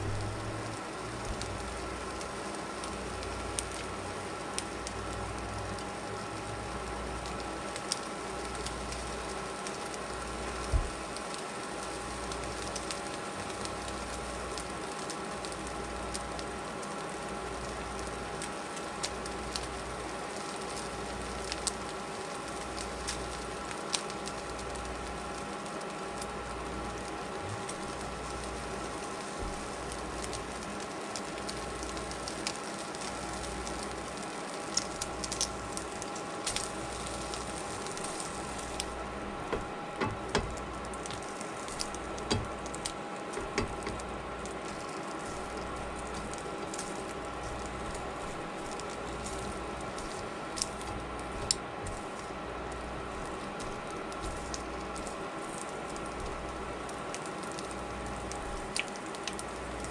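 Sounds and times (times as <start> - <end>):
electrical hum: 0.0 - 59.9
food sizzling in a pan: 0.0 - 59.9
hot oil popping and crackling: 0.0 - 59.9.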